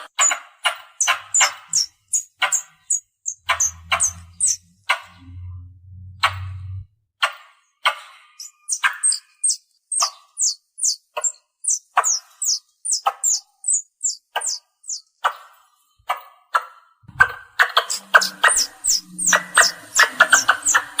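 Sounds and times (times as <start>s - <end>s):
squirrel chirps: 0.0s - 5.2s, 8.2s - 15.4s, 17.2s - 21.0s.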